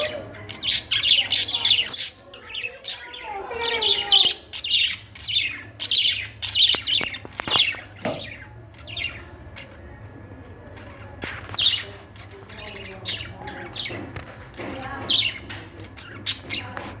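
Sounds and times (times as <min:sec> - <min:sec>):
bird chirping and squawking: 0:01.9 - 0:02.2.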